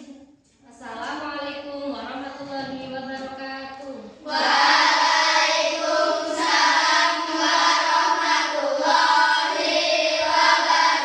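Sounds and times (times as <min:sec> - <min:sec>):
children singing in unison: 0:04.2 - 0:11.0.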